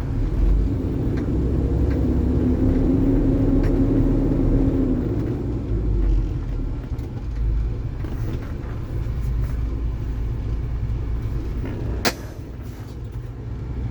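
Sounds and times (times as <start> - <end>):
diesel truck engine rumbling: 0.0 - 13.9.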